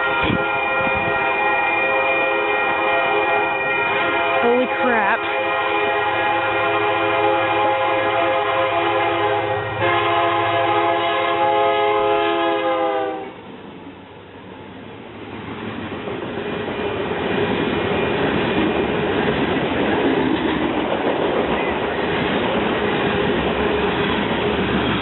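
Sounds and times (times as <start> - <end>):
locomotive horn chord: 0.0 - 13.4
train rolling on rails: 0.0 - 25.0.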